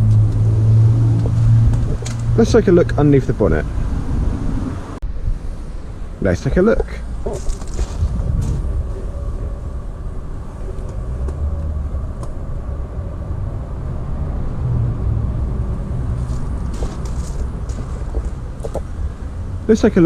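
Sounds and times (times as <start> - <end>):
diesel engine idling: 15.3 - 19.8.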